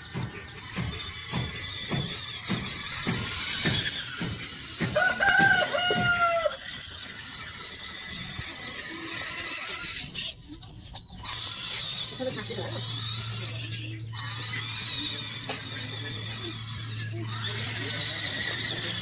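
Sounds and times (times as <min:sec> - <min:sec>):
rooster crowing: 0:04.8 - 0:06.8.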